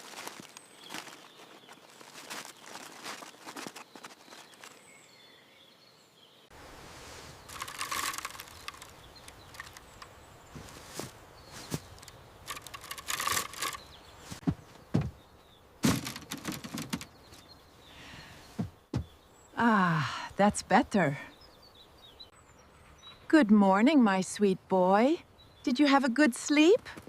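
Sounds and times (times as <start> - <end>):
rustling: 0.0 - 5.0, 6.6 - 15.2, 15.8 - 17.5
sharp knocks: 14.4 - 15.2.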